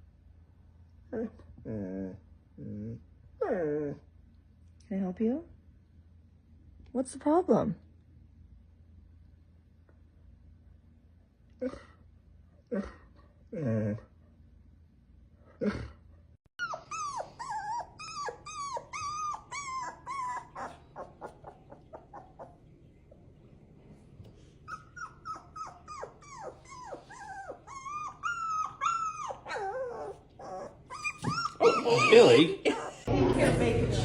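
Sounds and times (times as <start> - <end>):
dog whining and whimpering: 1.2 - 4.1, 16.6 - 22.6, 24.6 - 33.1.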